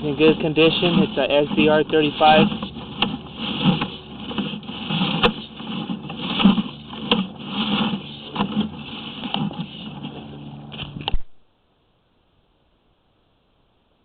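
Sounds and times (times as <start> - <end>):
cable knocking and scraping in pipe: 0.0 - 11.2.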